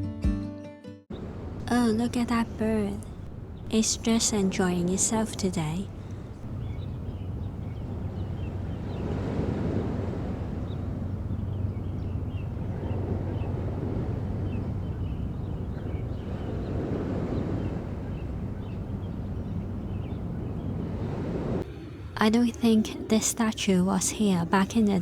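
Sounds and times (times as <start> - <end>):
waves washing onto beach: 1.1 - 22.2
wind buffeting microphone: 1.1 - 25.0
faint bird chirps: 1.9 - 9.2, 10.3 - 20.9.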